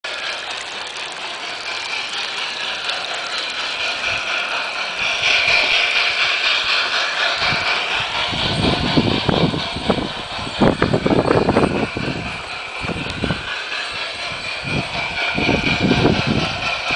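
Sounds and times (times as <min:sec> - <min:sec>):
model train rattling on track: 0:00.0 - 0:16.9.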